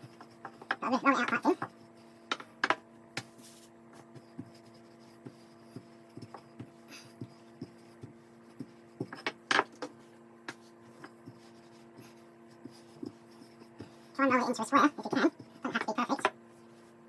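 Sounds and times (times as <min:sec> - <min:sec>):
rolling pin knocking and scraping: 0:00.0 - 0:03.4, 0:04.0 - 0:12.0
electrical hum: 0:00.0 - 0:17.0.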